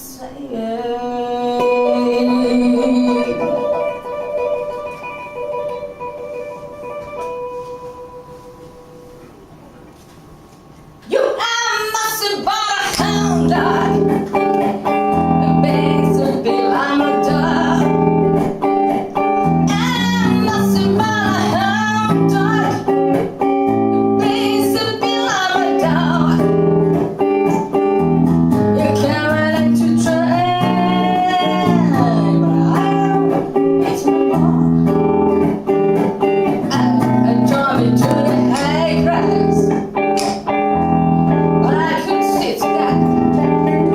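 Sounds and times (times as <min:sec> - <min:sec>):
person singing melody: 0:00.0 - 0:05.0, 0:12.2 - 0:18.2, 0:28.8 - 0:35.8, 0:36.4 - 0:40.0
guitar chords: 0:00.8 - 0:43.9.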